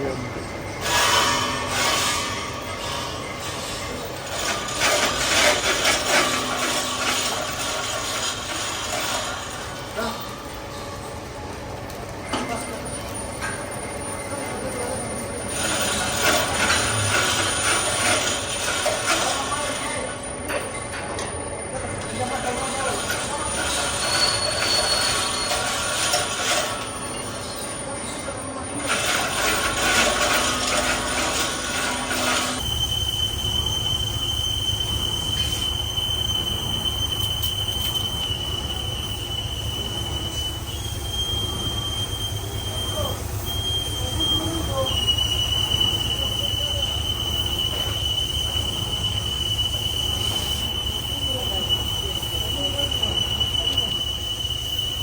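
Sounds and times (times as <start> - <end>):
workshop machine hum: 0.0 - 55.0
scraping on metal pipe: 0.8 - 10.2, 28.8 - 32.7.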